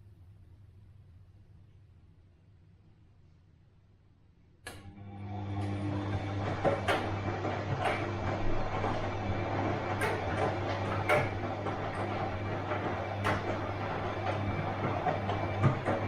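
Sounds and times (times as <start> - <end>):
washing machine drum churning: 4.8 - 16.0.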